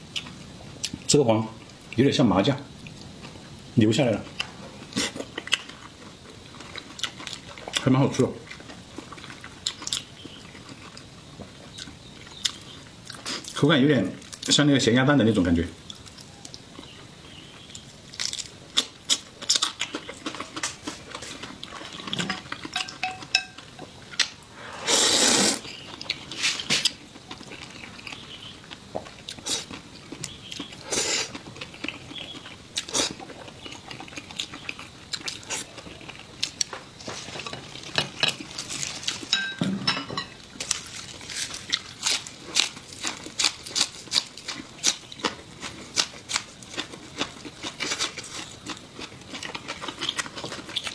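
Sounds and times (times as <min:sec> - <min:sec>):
utensils clattering against dishes: 0:22.0 - 0:23.9, 0:39.3 - 0:40.4.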